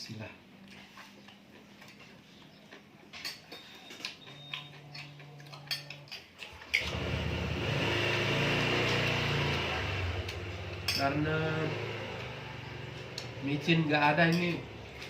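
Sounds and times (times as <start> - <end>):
motor running loudly: 6.8 - 13.8.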